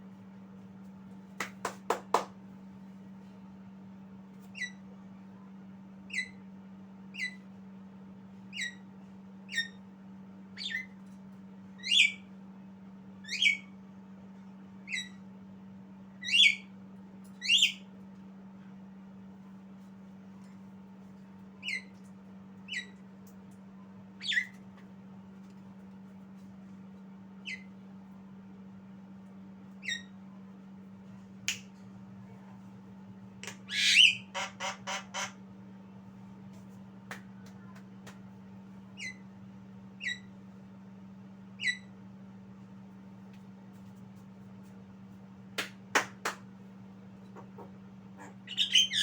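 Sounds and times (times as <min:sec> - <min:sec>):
bird squawk calls: 0:33.7 - 0:35.4, 0:48.2 - 0:49.0.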